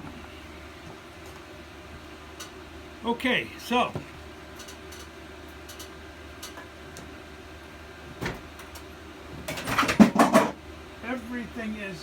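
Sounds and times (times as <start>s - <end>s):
hard objects rattling and clattering: 9.5s - 10.6s.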